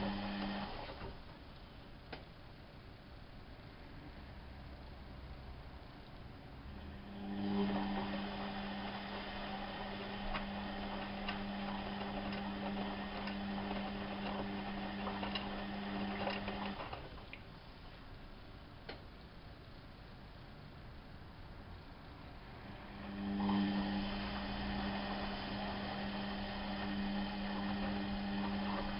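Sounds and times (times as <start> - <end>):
washing machine humming: 0.0 - 1.8, 5.7 - 19.0, 21.9 - 28.9.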